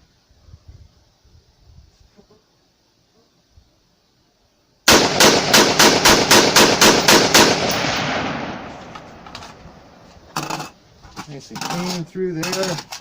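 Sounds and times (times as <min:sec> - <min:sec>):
rifle shots with echo: 0:04.9 - 0:10.0.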